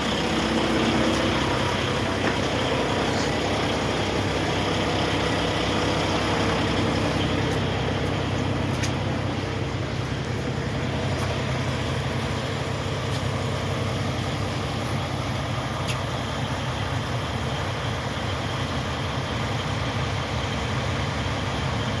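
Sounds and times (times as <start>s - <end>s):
truck diesel engine running: 0.0s - 22.0s.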